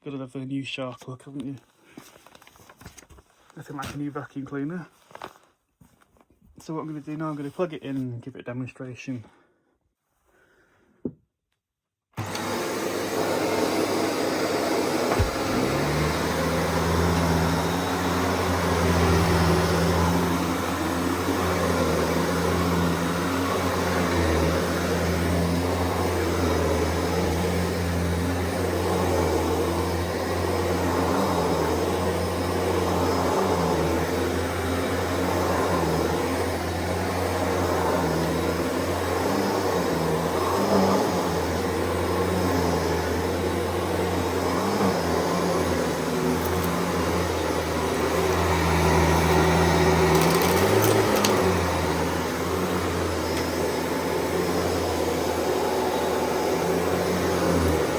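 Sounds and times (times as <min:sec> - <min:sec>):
vacuum cleaner click: 0:12.2 - 0:57.9
vacuum cleaner motor drone: 0:12.2 - 0:57.9.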